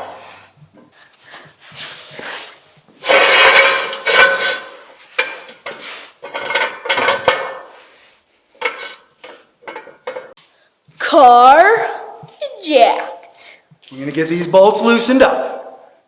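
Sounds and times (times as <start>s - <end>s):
metal tools clattering: 3.0s - 7.8s, 8.6s - 10.4s.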